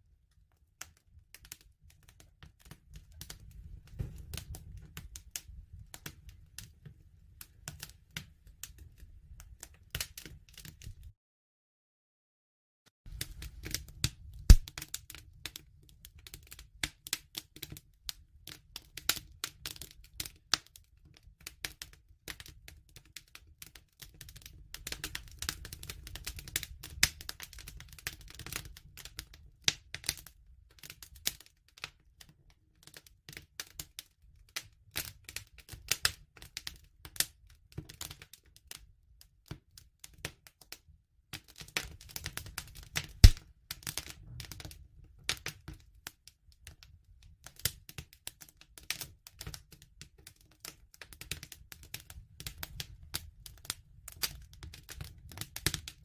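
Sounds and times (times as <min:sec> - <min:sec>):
wood fire crackling: 0:00.3 - 0:11.1, 0:13.1 - 0:32.3, 0:35.0 - 0:38.8, 0:41.3 - 0:46.8, 0:47.5 - 0:56.0
low rumble of flame: 0:01.2 - 0:09.6, 0:13.1 - 0:15.0, 0:43.0 - 0:43.4.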